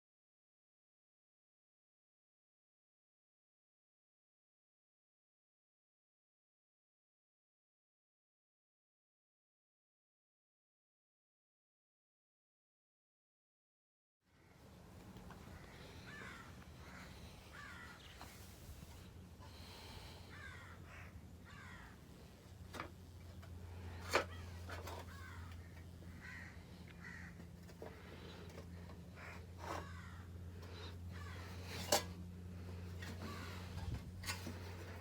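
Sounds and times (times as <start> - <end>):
ceiling fan humming: 14.4 - 35.0
birds calling harshly: 14.5 - 22.6, 23.2 - 35.0.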